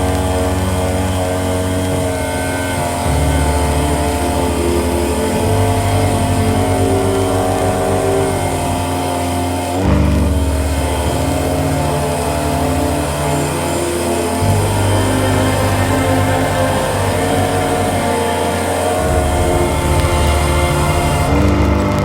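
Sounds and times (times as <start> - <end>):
sustained synth tones: 0.0 - 22.0
synth bass line: 0.0 - 22.0
synth sweep: 0.0 - 22.0.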